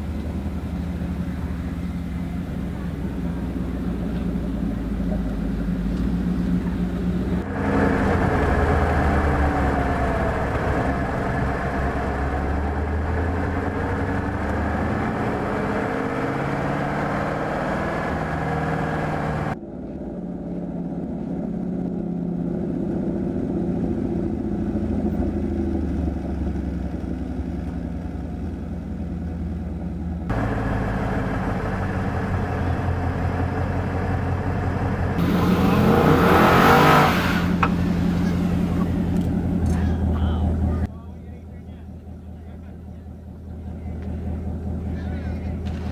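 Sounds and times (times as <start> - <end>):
car engine revving: 0.0 - 19.6, 30.2 - 45.9.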